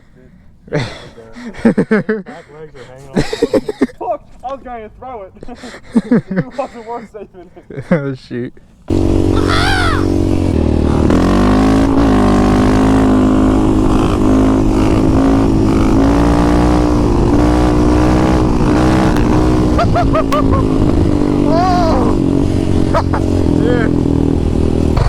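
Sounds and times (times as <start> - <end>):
dirt bike engine revving high: 8.9 - 25.0.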